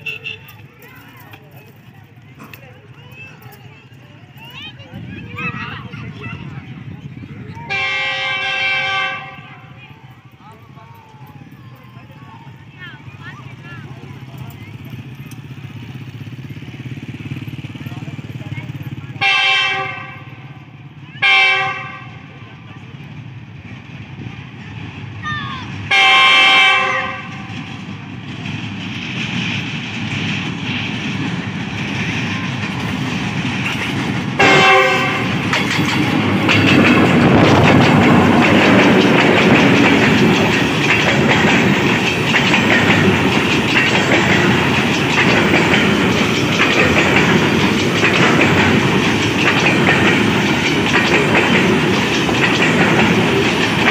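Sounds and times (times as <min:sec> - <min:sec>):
train wheels clattering over rail joints: 0:00.5 - 0:53.9
locomotive horn blasts: 0:07.7 - 0:09.8, 0:19.2 - 0:20.6, 0:21.2 - 0:22.4, 0:25.9 - 0:27.7, 0:34.4 - 0:35.5.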